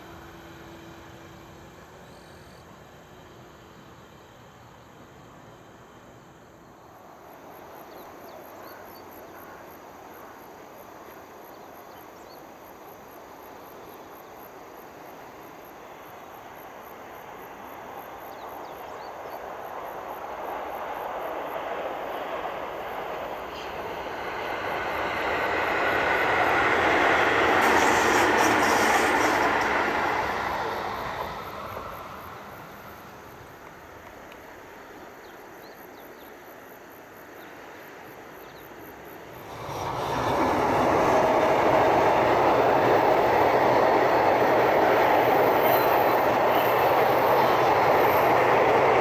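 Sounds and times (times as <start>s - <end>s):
electric train passing: 0.0s - 49.0s.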